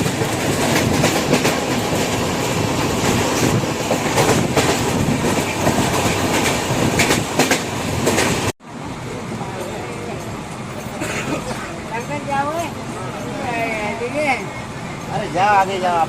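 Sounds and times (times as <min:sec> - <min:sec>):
wheels clacking over rail joints: 0:00.0 - 0:08.5
train rumbling: 0:00.0 - 0:16.0.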